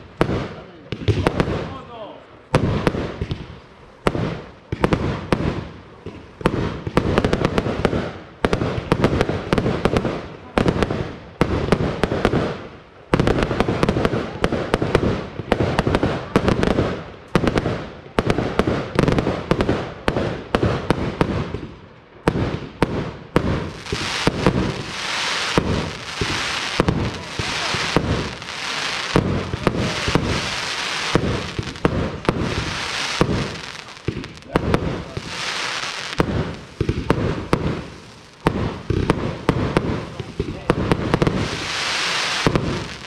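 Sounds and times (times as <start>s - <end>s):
fireworks bangs: 0.0s - 43.0s
hissing crackle: 23.6s - 43.0s.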